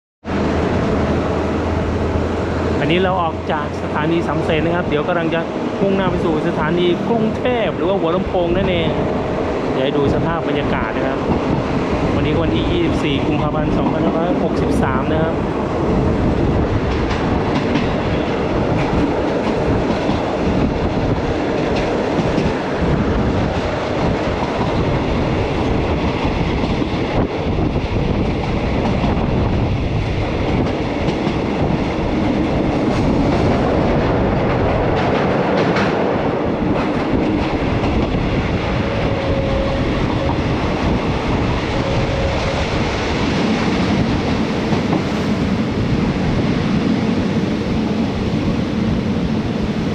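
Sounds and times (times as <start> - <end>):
train rumble: 0.2 - 49.9
wheels clattering over rail joints: 30.5 - 41.1.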